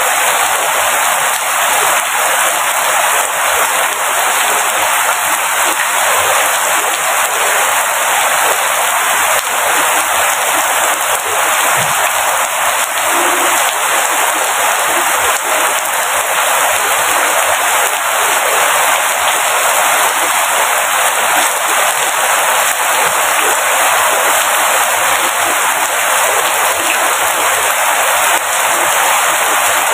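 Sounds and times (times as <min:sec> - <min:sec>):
heavy rain falling: 0:00.0 - 0:29.9.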